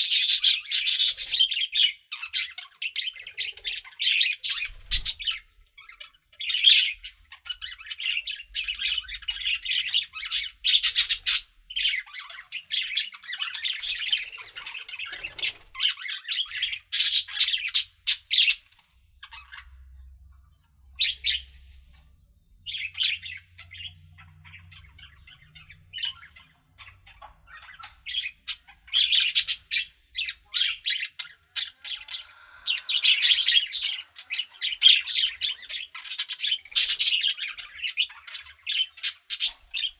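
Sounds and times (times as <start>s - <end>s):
budgerigars chattering: 0.0s - 20.0s, 20.9s - 21.9s, 22.6s - 39.9s.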